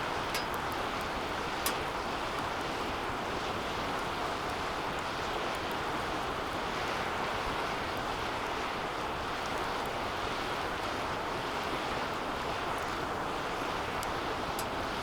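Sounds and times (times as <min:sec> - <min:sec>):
faint fire crackles: 0:00.0 - 0:15.0
roaring bonfire flames: 0:00.0 - 0:15.0.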